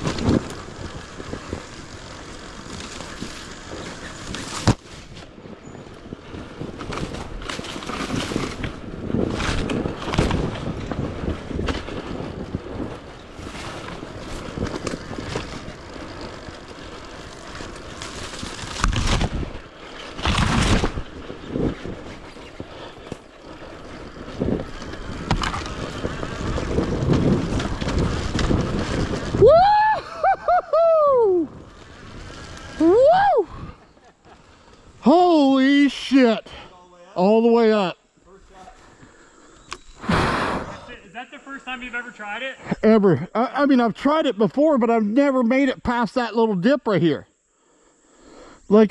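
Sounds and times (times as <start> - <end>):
wind buffeting microphone: 0.0 - 34.0
person whooping shout: 29.4 - 31.5, 32.8 - 33.6.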